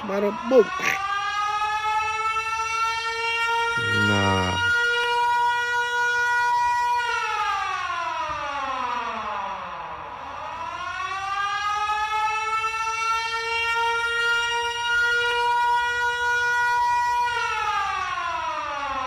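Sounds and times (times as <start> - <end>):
siren wailing: 0.0 - 9.6.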